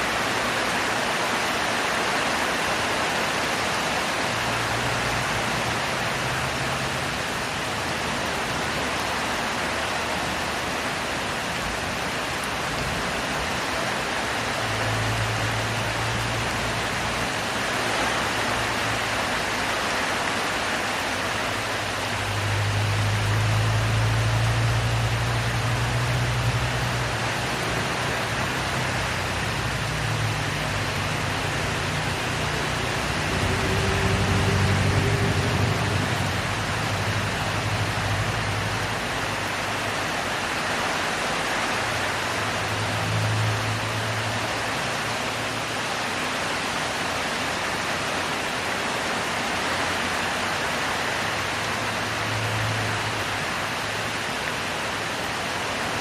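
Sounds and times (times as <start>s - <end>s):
heavy rain falling: 0.0s - 56.0s
low hum: 22.8s - 39.2s.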